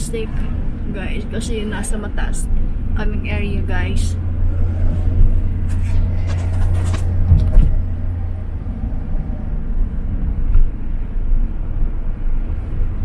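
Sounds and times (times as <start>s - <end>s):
car engine and road rumble: 0.0s - 13.0s
brief rustles: 5.6s - 7.8s.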